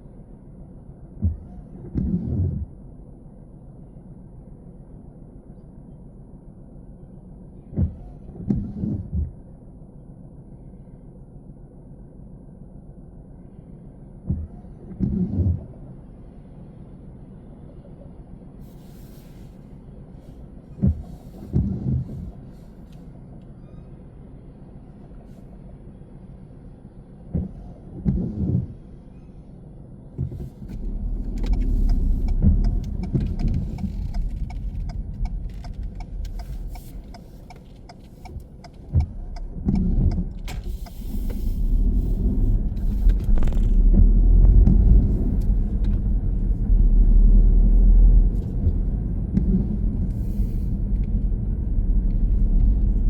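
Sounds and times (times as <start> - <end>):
car engine and road rumble: 0.0 - 53.0
light clicks and rattles: 30.2 - 41.5.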